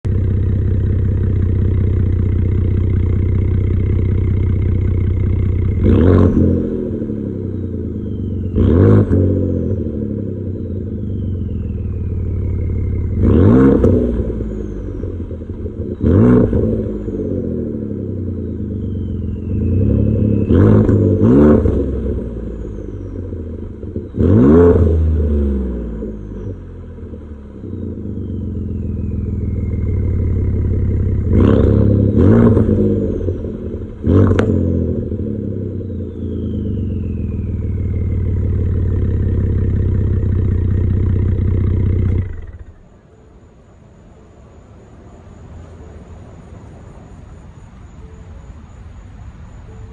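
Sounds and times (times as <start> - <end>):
truck engine revving: 13.1 - 14.6, 23.5 - 26.3, 29.4 - 35.4.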